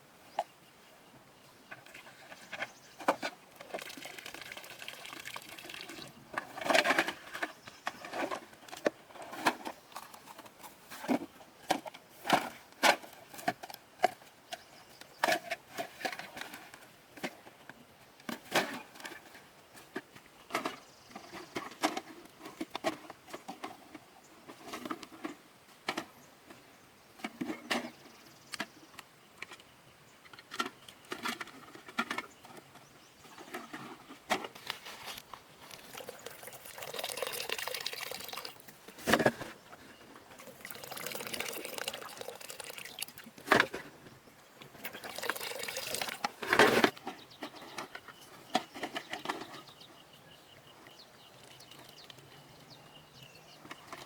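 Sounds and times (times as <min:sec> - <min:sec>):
rustling noise: 0:33.3 - 0:36.3.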